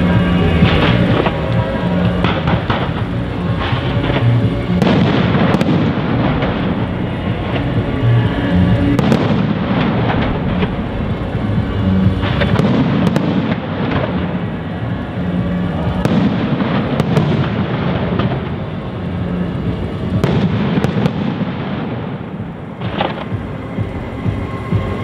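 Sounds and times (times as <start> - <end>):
continuous rumble of bursts: 0.0 - 25.0
sharp firework bangs: 0.2 - 18.9, 20.1 - 23.6
firework shells bursting: 0.2 - 23.7.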